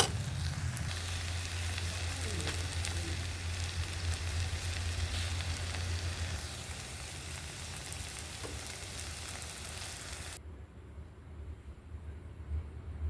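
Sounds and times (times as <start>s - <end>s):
food sizzling in a pan: 0.0s - 10.4s.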